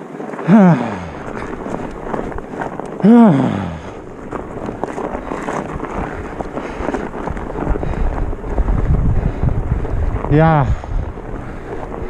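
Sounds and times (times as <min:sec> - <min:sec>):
wind buffeting microphone: 0:01.0 - 0:12.0
low rumble: 0:05.8 - 0:12.0.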